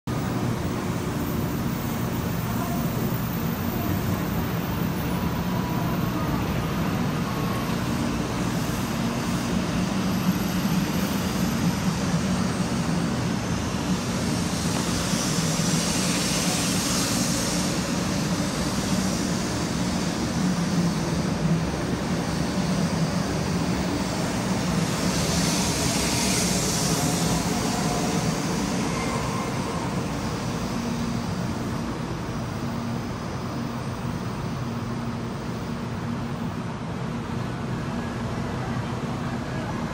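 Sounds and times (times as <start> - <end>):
train running noise: 0.1 - 39.9
rushes of hiss: 8.0 - 32.4.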